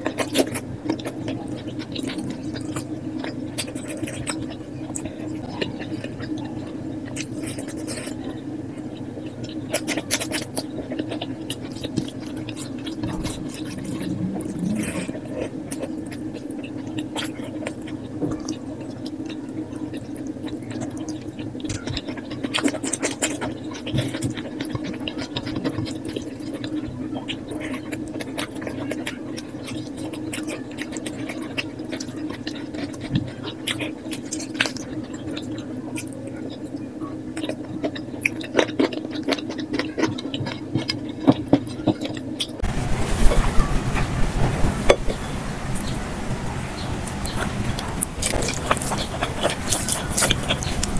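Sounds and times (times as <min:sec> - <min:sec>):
chewing and wet squishing: 0:00.0 - 0:44.1, 0:46.7 - 0:50.9
steady low hum: 0:00.0 - 0:50.9.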